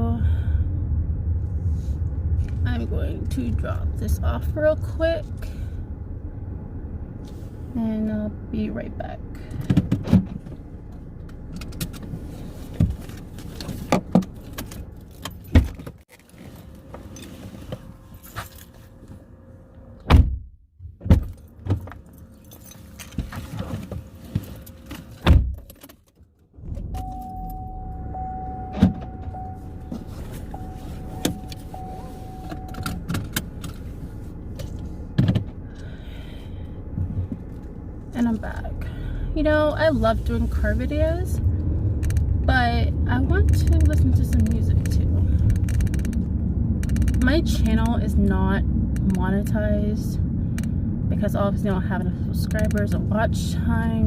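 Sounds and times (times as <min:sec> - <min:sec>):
car engine and air conditioning hum: 0:00.0 - 0:54.0
car door shutting: 0:20.0 - 0:22.0, 0:26.6 - 0:33.8
high intermittent beeping: 0:26.9 - 0:33.0.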